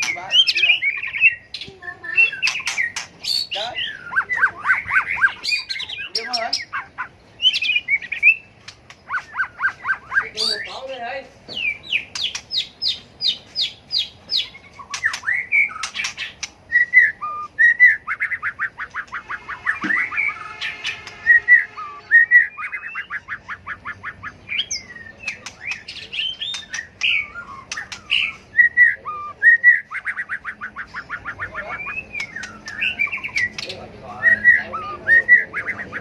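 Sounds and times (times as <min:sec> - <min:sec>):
songbird singing: 0:00.0 - 0:36.0
sharp bird clicks: 0:02.3 - 0:03.5, 0:07.5 - 0:10.2, 0:11.5 - 0:17.1, 0:22.6 - 0:28.5, 0:29.9 - 0:33.8.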